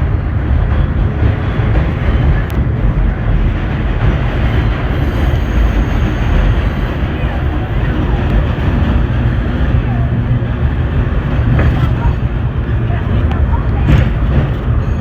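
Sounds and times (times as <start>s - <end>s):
subway car wheels rumbling: 0.0s - 15.0s.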